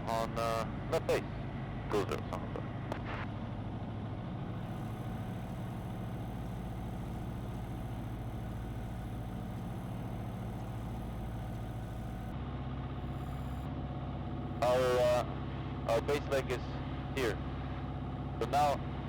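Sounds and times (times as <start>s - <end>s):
light aircraft engine droning: 0.0s - 19.0s.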